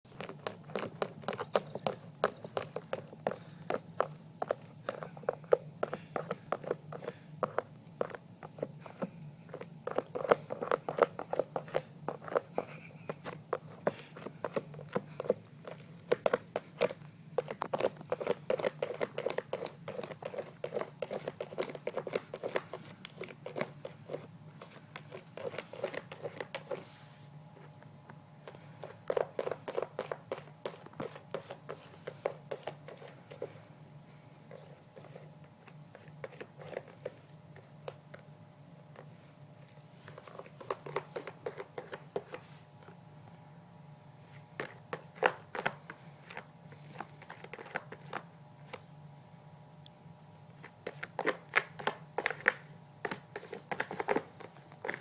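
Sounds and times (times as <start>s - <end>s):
scratching and tapping: 0.1s - 26.8s, 40.2s - 42.4s, 44.6s - 48.8s, 50.6s - 55.0s
high bird chirps: 1.3s - 4.3s, 8.9s - 9.4s, 14.5s - 18.3s, 20.7s - 22.8s, 53.1s - 54.5s.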